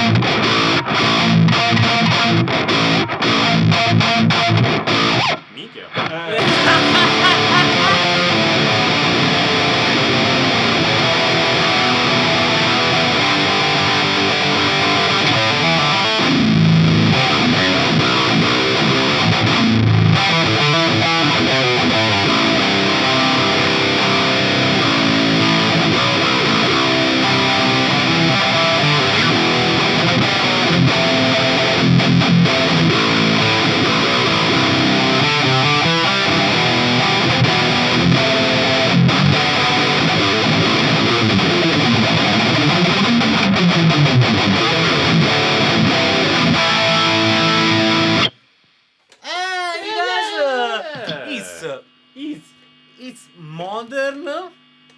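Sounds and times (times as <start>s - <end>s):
distorted electric guitar riff: 5.9s - 48.4s.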